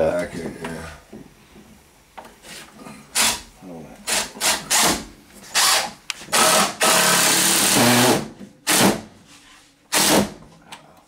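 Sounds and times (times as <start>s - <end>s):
power drill driving screws into wood: 3.2s - 3.4s, 4.1s - 9.1s, 9.9s - 10.4s.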